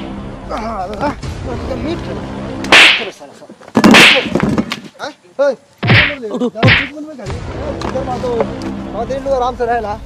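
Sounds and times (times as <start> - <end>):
loud slaps: 2.6 - 3.2, 3.8 - 4.8, 5.8 - 6.9.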